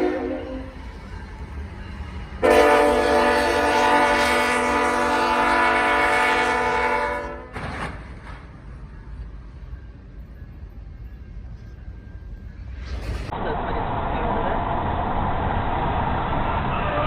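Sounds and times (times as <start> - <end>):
multi-tone air horn blast: 2.4 - 7.6.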